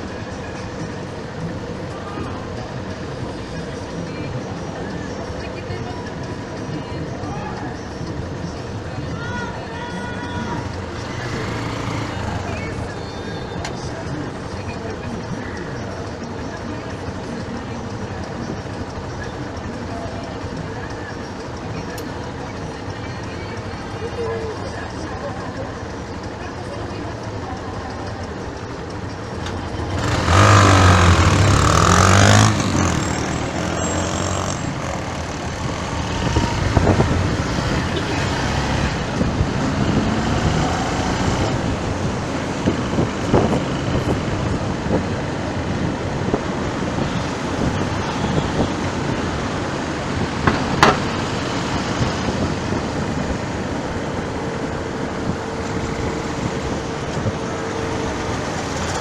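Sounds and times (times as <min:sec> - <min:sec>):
road traffic noise: 0:00.0 - 0:59.0
heavy vehicle passing: 0:09.9 - 0:14.1, 0:28.2 - 0:59.0.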